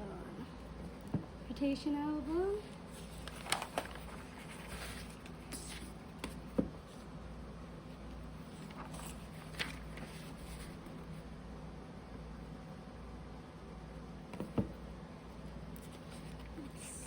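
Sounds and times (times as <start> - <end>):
faint steady hum: 0.0 - 17.0
paper pages rustling: 2.6 - 7.1, 8.4 - 11.1, 15.8 - 17.0.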